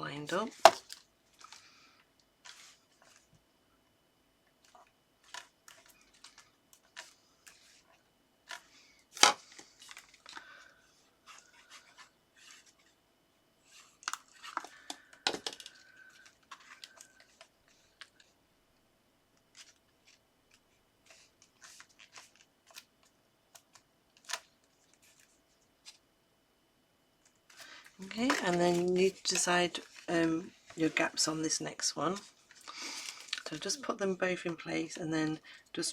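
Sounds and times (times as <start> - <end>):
paper rustling: 2.4 - 3.3, 13.6 - 18.3, 19.5 - 26.0, 27.5 - 34.7.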